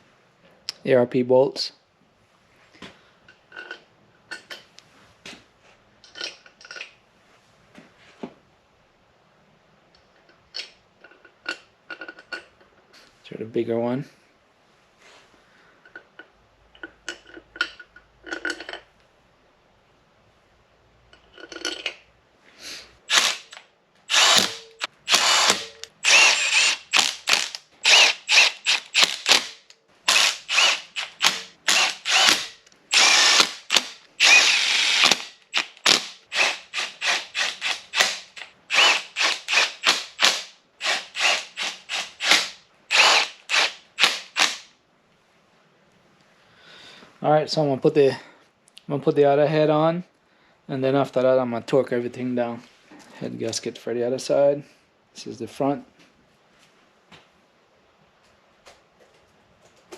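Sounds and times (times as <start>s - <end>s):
ratchet wrench clicking: 23.1s - 44.6s.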